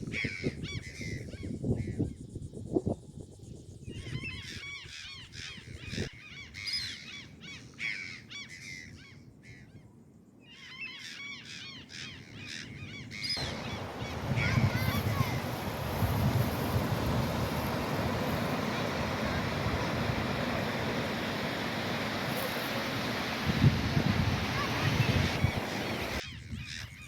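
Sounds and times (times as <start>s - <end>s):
birds calling: 10.5s - 27.0s
rushing wind or surf: 13.4s - 26.4s.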